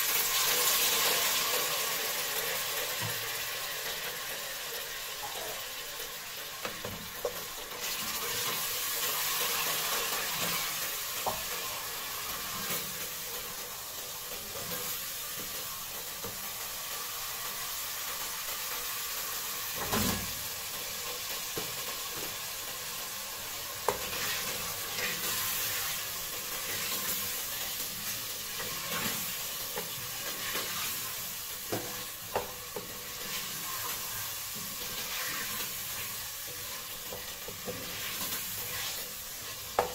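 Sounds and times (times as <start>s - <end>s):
sauce sizzling in a pot: 0.0s - 39.9s
wooden spoon stirring: 28.4s - 39.9s.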